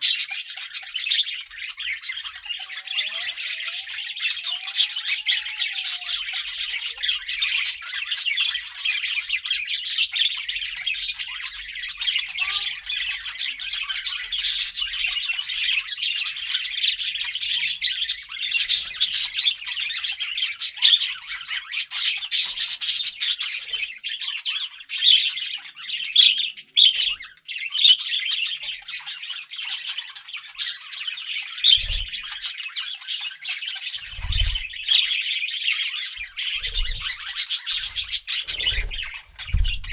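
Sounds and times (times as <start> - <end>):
budgerigars chirping and chattering: 0.0 - 39.9
low thumps: 37.8 - 39.9.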